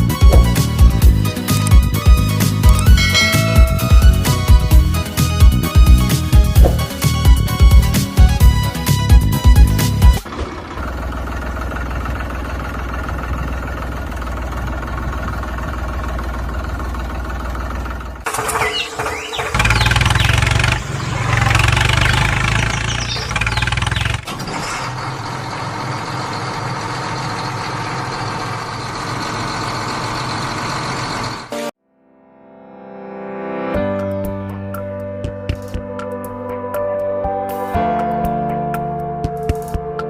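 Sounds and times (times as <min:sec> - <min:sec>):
tractor engine running: 0:00.0 - 0:31.7.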